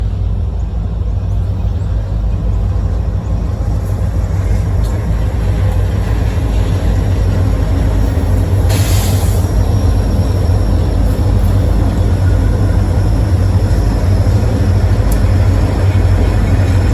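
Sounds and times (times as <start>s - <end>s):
freight train rumbling by: 0.0s - 16.9s
brief hiss: 8.6s - 9.5s.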